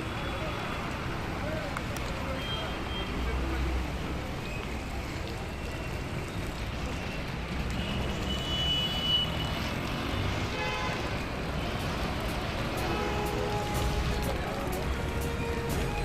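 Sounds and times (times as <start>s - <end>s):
road traffic engine rumble: 0.0s - 16.0s
vehicle horn: 10.5s - 11.2s, 12.8s - 14.3s.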